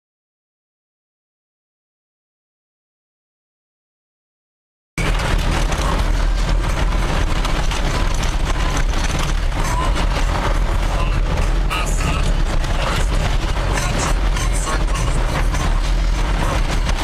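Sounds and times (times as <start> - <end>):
gravel crackling under truck: 5.0 - 17.0
tyres rumbling on gravel: 5.0 - 17.0.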